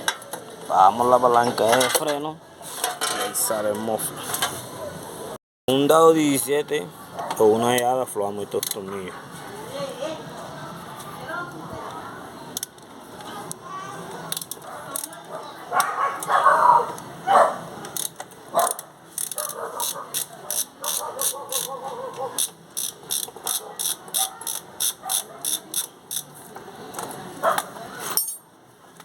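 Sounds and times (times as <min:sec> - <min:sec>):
ratchet wrench clicking: 0:18.0 - 0:21.7, 0:22.4 - 0:26.3.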